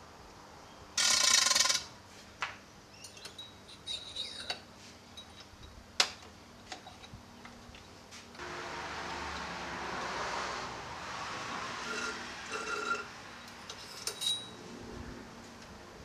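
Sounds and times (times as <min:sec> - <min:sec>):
metal tools clinking: 0:03.0 - 0:05.7, 0:11.9 - 0:14.6
loud rushing noise: 0:08.4 - 0:12.5.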